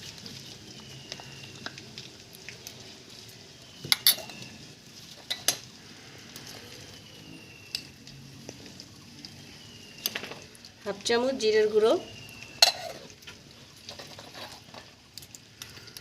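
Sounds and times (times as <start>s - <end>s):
faint sizzle of frying: 0.0s - 16.0s.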